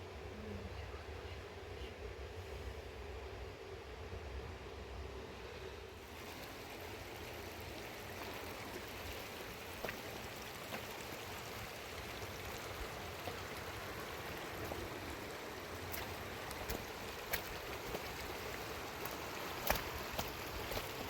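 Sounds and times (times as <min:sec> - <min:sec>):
running water rushing: 0:06.0 - 0:21.0.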